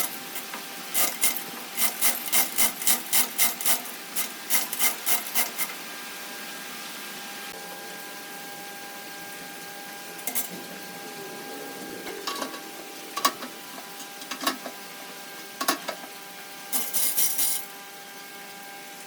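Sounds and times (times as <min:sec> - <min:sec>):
steady electric hum: 0:00.0 - 0:06.8, 0:07.4 - 0:19.0
clattering scrape: 0:10.2 - 0:10.7, 0:16.8 - 0:17.7.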